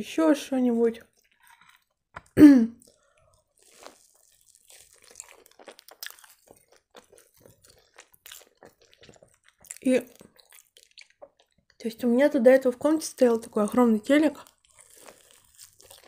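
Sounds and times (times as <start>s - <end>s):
mouth clicks and smacks chewing: 1.0s - 11.8s, 14.4s - 16.0s.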